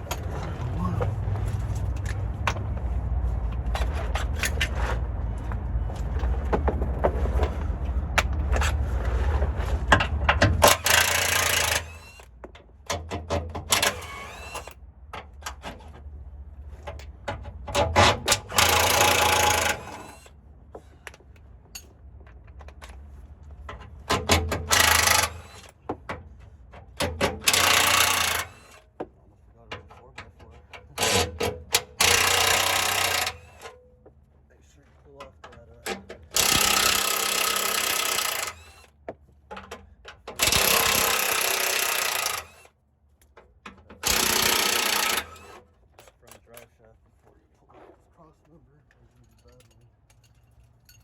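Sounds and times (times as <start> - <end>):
tool and metal clicks: 9.9 - 16.0, 16.8 - 20.3, 23.7 - 28.9, 29.7 - 33.9, 35.2 - 46.7
impact wrench rattling: 17.8 - 20.2, 27.0 - 28.8, 31.0 - 33.8, 36.0 - 38.9, 39.5 - 42.6, 43.9 - 45.6.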